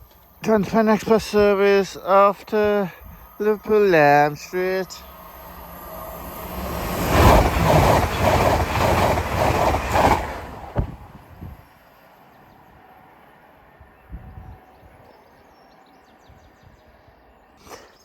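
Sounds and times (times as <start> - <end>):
train passing at speed: 0.1 - 17.5
wheels clattering over rail joints: 6.2 - 11.2.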